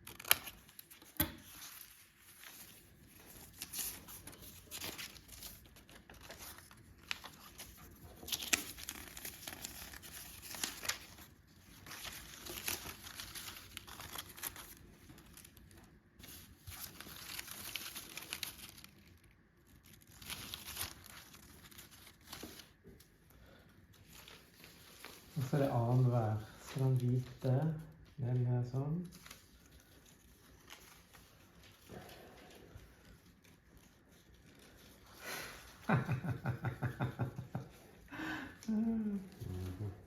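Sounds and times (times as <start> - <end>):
small paper clicks: 0.0 - 23.1
paper crinkling and rustling: 0.0 - 40.0.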